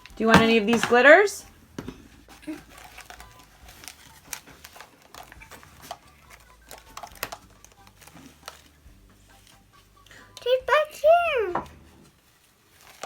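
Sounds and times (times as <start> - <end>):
plastic containers clicking on table: 0.0 - 2.0, 2.7 - 8.7.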